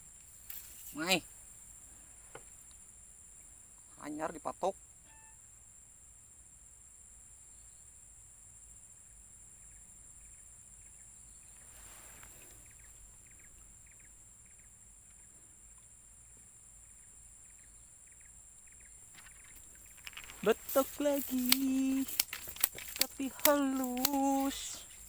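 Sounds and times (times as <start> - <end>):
soft rustle: 0.0 - 2.8, 11.5 - 13.4, 19.1 - 25.0
short chirps: 5.1 - 5.4
high-pitched insect drone: 17.5 - 25.0.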